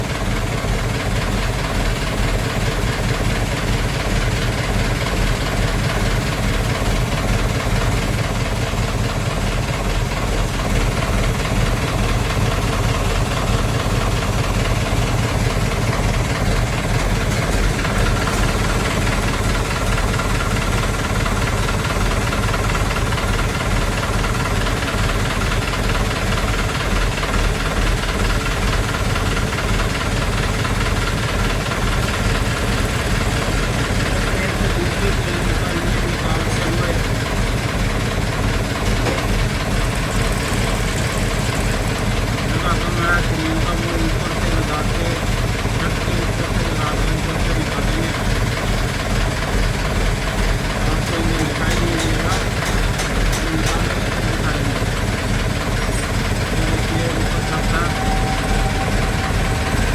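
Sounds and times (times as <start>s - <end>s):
engine idling: 0.0s - 59.9s
faint high whine: 56.6s - 59.9s.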